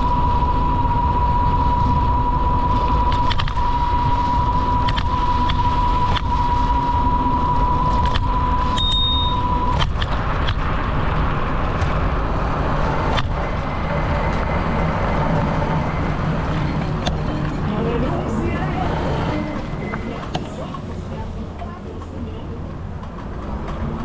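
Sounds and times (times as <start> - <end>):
steady high whine: 0.0 - 24.0
wind and tyre noise: 0.0 - 24.0
bicycle clicks and rattles: 3.1 - 3.6, 7.9 - 12.0.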